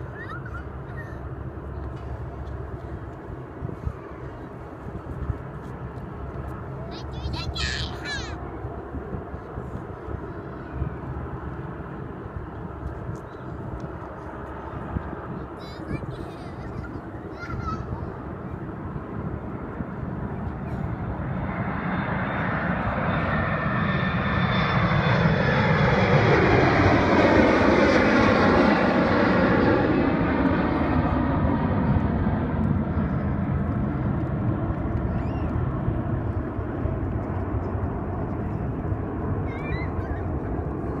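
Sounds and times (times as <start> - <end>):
airliner taking off: 0.0 - 41.0.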